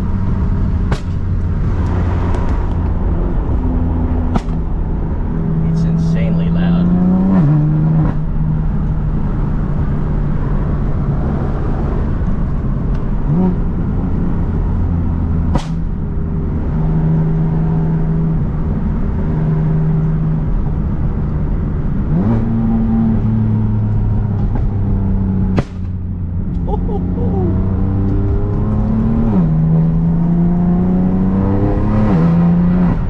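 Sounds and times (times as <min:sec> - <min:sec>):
exhaust crack: 0:00.0 - 0:11.3, 0:11.9 - 0:16.6, 0:23.2 - 0:29.9
car engine running while driving: 0:00.0 - 0:33.0.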